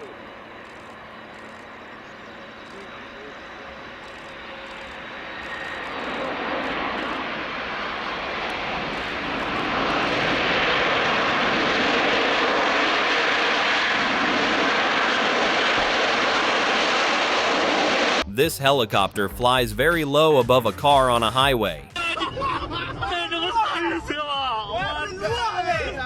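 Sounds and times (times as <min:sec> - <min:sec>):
faint engine whine: 0:00.0 - 0:18.4
airplane engine roaring: 0:00.0 - 0:21.9.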